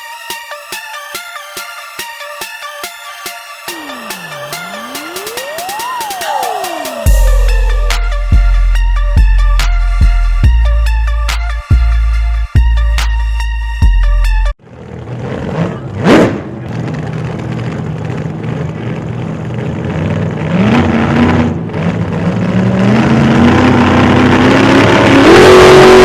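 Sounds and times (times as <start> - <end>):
engine exhaust accelerating: 3.7 - 11.3.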